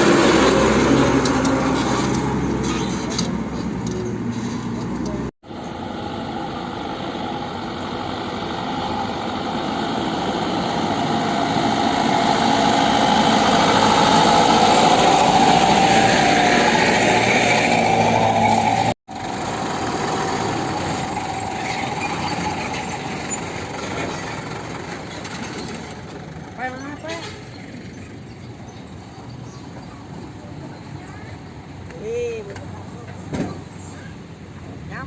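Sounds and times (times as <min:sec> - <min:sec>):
truck engine running: 0:00.0 - 0:31.8.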